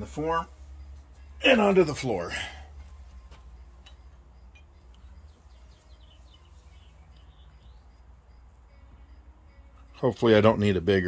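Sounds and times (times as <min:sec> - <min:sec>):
low steady hum: 0:00.0 - 0:11.0
bird chirping faintly: 0:03.1 - 0:10.9.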